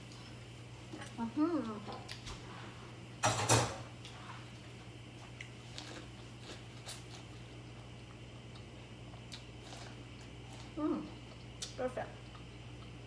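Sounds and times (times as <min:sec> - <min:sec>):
steady low hum: 0:00.0 - 0:13.0
chewing corn on the cob: 0:04.6 - 0:13.0.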